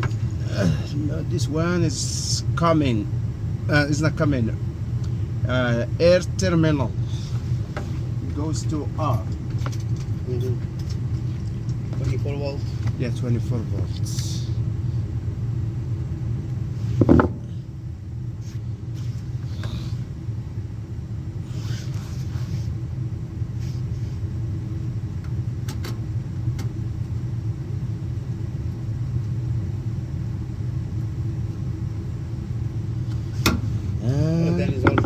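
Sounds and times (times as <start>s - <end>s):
low mechanical hum: 0.0s - 35.0s
short knock: 17.0s - 17.5s.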